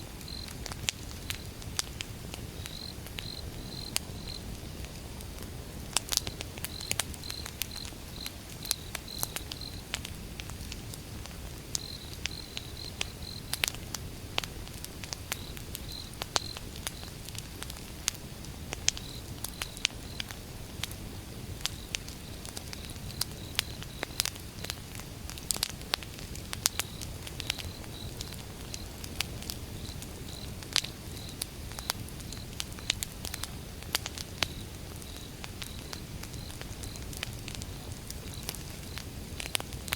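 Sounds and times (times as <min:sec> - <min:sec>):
wood fire crackling and popping: 0:00.0 - 0:39.9
cricket chirping: 0:00.3 - 0:00.6, 0:02.6 - 0:04.5, 0:06.1 - 0:09.9, 0:11.8 - 0:13.6, 0:15.3 - 0:17.2, 0:19.0 - 0:20.3, 0:21.6 - 0:24.8, 0:26.6 - 0:29.0, 0:29.7 - 0:33.6, 0:34.3 - 0:39.7.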